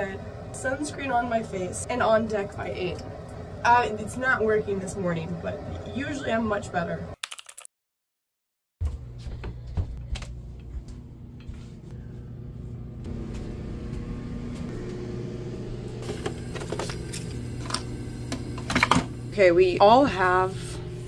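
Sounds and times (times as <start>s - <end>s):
low hum of onboard machinery: 0.0s - 7.2s, 9.0s - 21.0s
footsteps and handling knocks: 8.8s - 11.8s.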